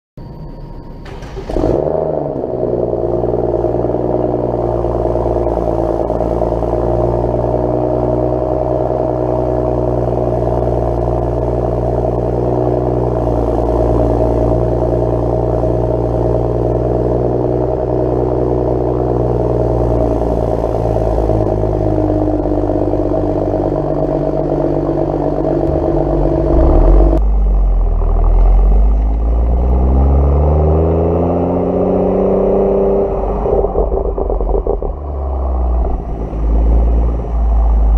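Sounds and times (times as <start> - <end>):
car engine idling: 1.2 - 29.3.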